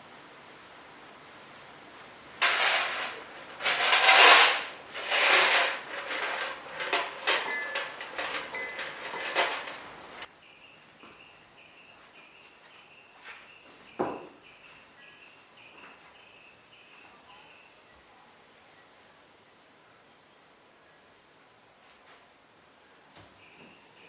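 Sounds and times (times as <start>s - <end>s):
painting supplies rustling and clattering: 2.4s - 10.3s
light clinks: 5.1s - 10.3s
faint bird chirp: 10.4s - 21.2s, 22.8s - 24.0s.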